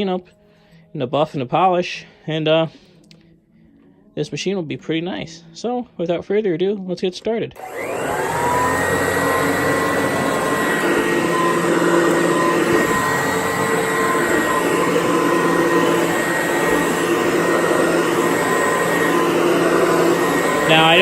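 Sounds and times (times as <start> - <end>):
vacuum cleaner running: 7.6 - 21.0.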